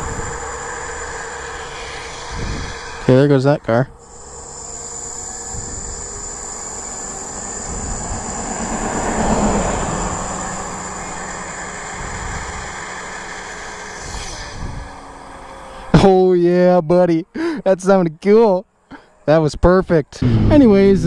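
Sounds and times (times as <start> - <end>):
road vehicle passing: 0.0 - 16.2.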